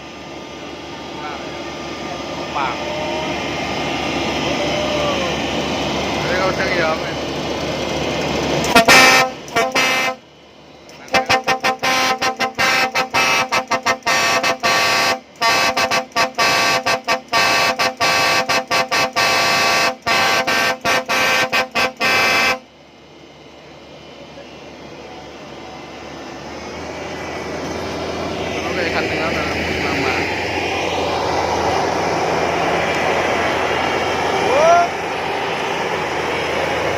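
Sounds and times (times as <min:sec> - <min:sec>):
machine engine noise: 0:00.0 - 0:36.9
multi-tone horn honking: 0:08.6 - 0:10.3, 0:11.0 - 0:22.7.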